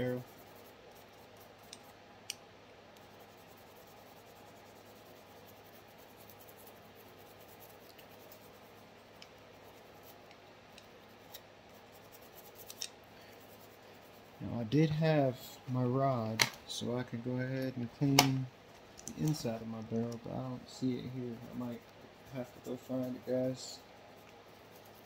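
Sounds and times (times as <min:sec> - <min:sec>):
light clicks of metal parts: 0:18.9 - 0:20.3.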